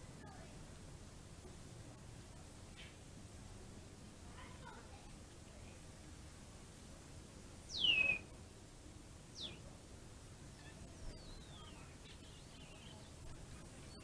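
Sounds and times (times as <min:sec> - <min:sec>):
bird whistling falling notes: 0:07.7 - 0:08.2.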